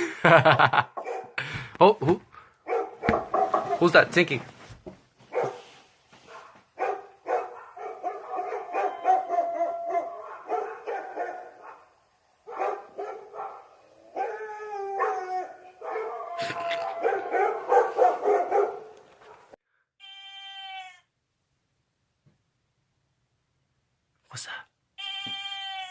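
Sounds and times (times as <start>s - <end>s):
dog barking: 1.0s - 1.4s, 2.6s - 3.9s, 5.3s - 14.3s, 15.0s - 19.6s
dog whining: 8.2s - 10.4s.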